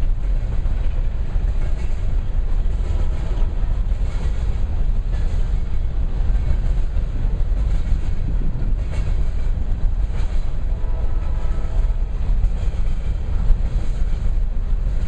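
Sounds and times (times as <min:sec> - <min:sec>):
freight train wheels rumbling on rails: 0:00.0 - 0:15.0.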